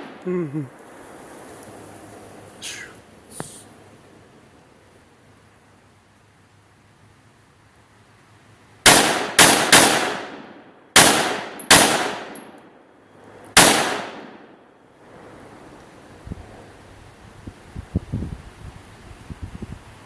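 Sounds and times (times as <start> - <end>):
gunshots with echo: 8.9 - 12.4, 13.6 - 14.4.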